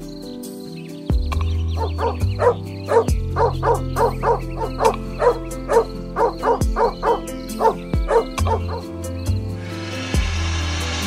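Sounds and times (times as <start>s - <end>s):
background music: 0.0s - 11.0s
dog barking rapidly: 1.8s - 8.9s.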